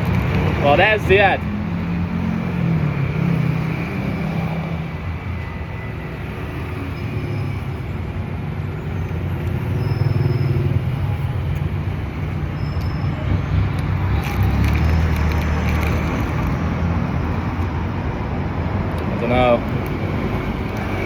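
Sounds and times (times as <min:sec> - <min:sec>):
road traffic rumble: 0:00.0 - 0:21.0
vehicle engine running nearby: 0:09.0 - 0:18.1.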